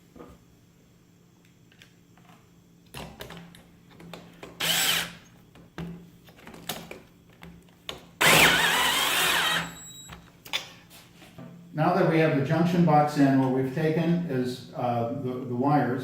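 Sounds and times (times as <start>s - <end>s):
power drill driving screws: 4.6s - 5.2s, 8.2s - 10.1s.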